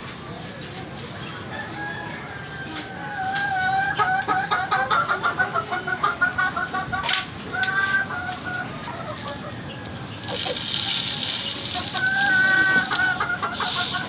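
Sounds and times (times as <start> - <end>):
chicken clucking: 3.5 - 14.0.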